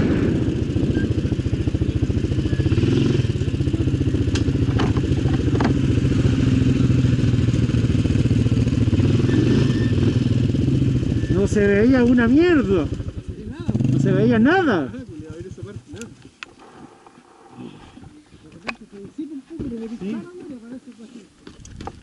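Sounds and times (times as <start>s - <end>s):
atv engine running: 0.0s - 17.9s.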